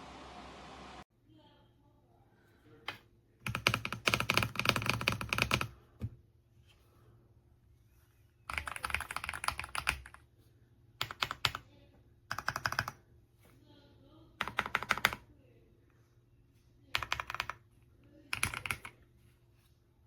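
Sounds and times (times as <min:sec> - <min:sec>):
mechanical keyboard typing: 0:03.4 - 0:05.7, 0:08.5 - 0:10.2, 0:11.0 - 0:11.6, 0:12.3 - 0:13.0, 0:14.4 - 0:15.2, 0:16.9 - 0:17.6, 0:18.3 - 0:19.0.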